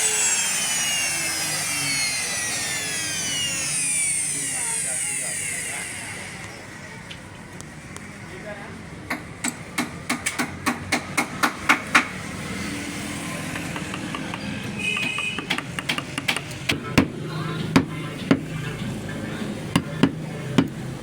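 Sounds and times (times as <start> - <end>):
hand tool knocking on wood: 13.5 - 18.5, 19.8 - 20.8.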